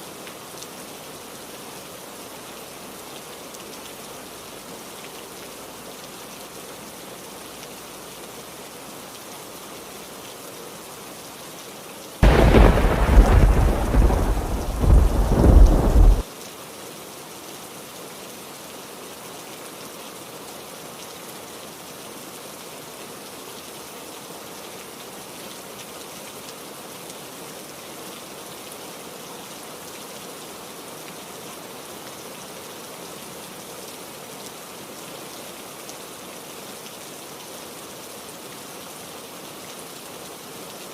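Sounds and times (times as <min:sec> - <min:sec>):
heavy rain: 0:00.0 - 0:40.9
thunder clap and rumble: 0:12.2 - 0:16.2.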